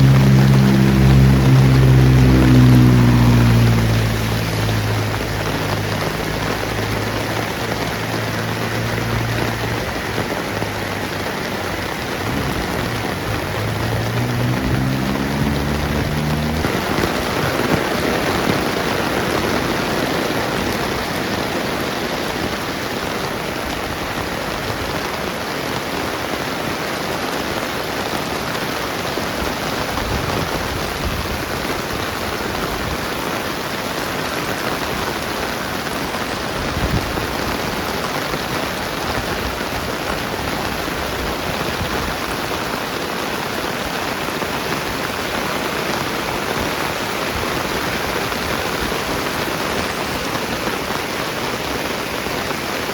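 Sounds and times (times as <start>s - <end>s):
steady rain falling: 0.0s - 52.9s.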